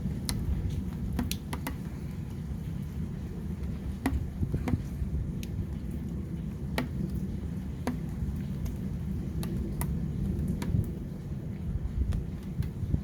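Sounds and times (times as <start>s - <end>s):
wind and downpour rumble: 0.0s - 13.0s
drops tapping a hard surface: 1.1s - 1.8s, 4.0s - 4.9s.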